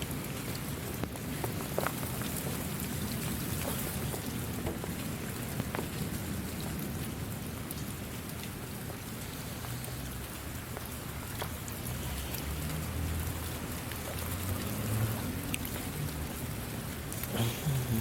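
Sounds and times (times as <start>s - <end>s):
steady rain falling: 0.0s - 18.0s
drops ticking on a surface: 0.2s - 18.0s.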